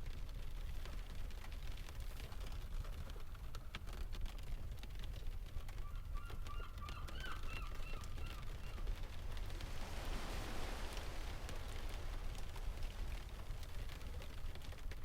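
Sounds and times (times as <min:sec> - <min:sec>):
bird calling: 0:05.8 - 0:09.0
fireplace crackling: 0:08.7 - 0:15.0
steady low rumble: 0:08.8 - 0:15.0.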